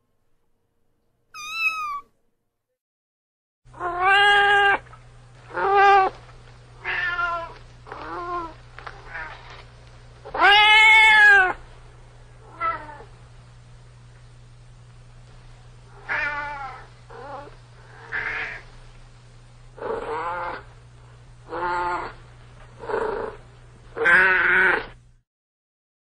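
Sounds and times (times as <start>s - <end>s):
cat meowing: 1.4s - 2.1s, 10.3s - 11.6s, 24.0s - 24.9s
steady low hum: 3.7s - 24.0s.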